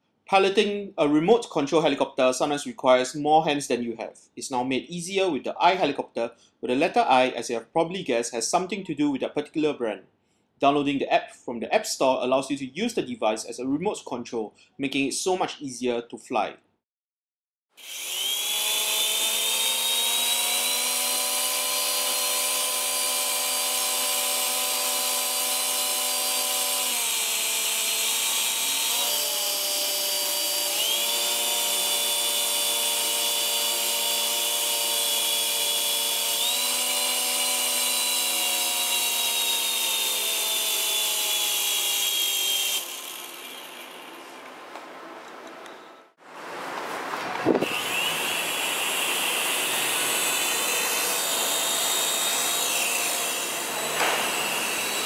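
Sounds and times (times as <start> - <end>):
toy helicopter motors whining: 17.8 - 44.2.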